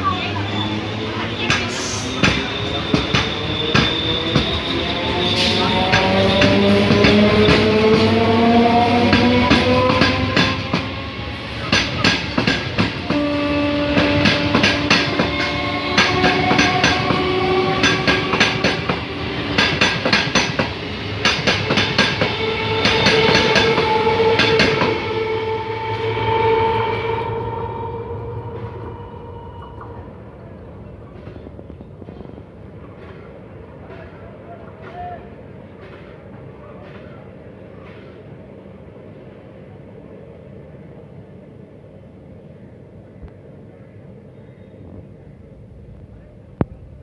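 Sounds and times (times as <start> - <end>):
train traction motors whining: 0.1 - 33.1.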